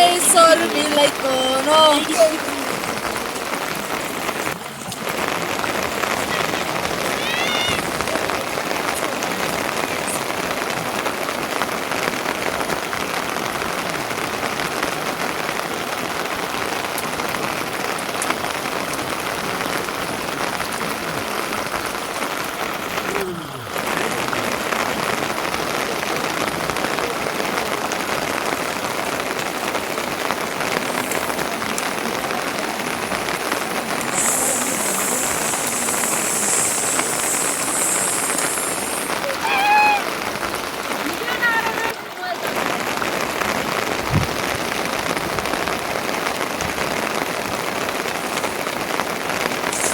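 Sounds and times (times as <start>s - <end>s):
higher hiss: 0.0s - 10.7s, 28.8s - 41.8s, 47.2s - 49.9s
steady rain falling: 0.0s - 49.9s.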